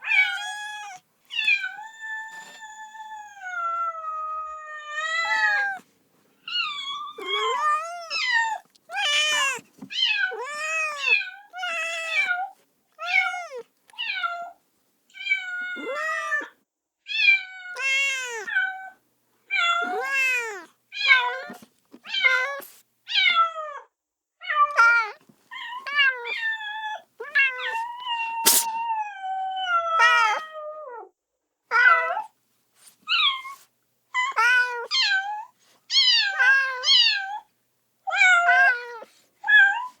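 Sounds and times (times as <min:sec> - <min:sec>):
kitten meowing: 0:00.0 - 0:03.7, 0:17.7 - 0:18.5, 0:27.5 - 0:28.8
sharp click: 0:28.5 - 0:28.7.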